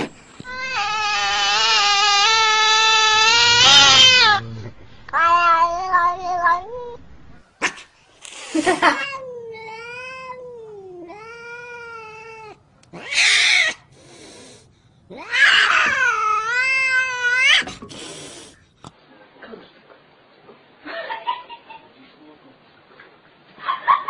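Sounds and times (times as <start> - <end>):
cat hissing: 0.0 - 6.7, 7.6 - 9.2, 11.2 - 18.6
cat yowling: 0.5 - 4.5, 5.1 - 7.0, 8.8 - 13.8, 15.1 - 17.8.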